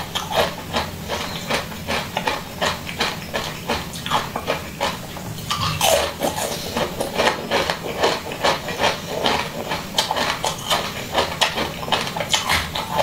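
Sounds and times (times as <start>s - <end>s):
wet chewing smacks and clicks: 0.1s - 13.0s.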